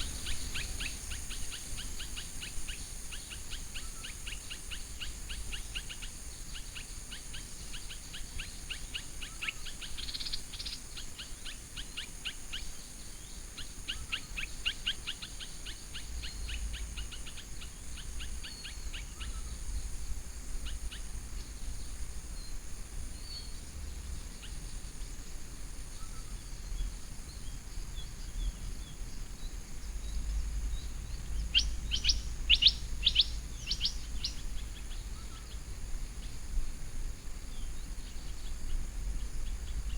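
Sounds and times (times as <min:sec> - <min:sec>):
small birds chirping: 0:00.0 - 0:06.9, 0:25.9 - 0:36.5.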